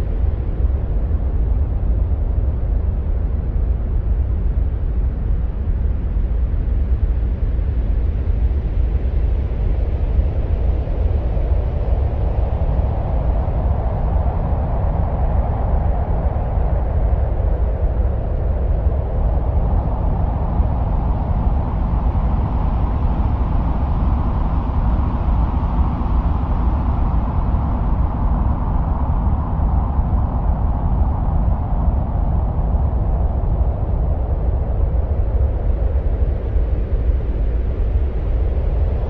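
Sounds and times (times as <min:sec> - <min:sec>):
low wind-like rumble: 0:00.0 - 0:39.0.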